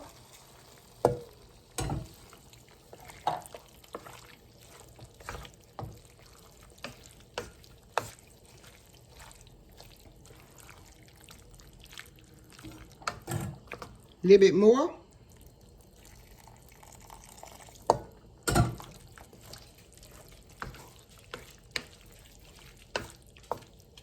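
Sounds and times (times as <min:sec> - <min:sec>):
spoon stirring thick filling: 0:00.0 - 0:14.2, 0:15.1 - 0:24.0
faint sizzle: 0:00.0 - 0:24.0
spoon knocking against pot: 0:01.0 - 0:02.1.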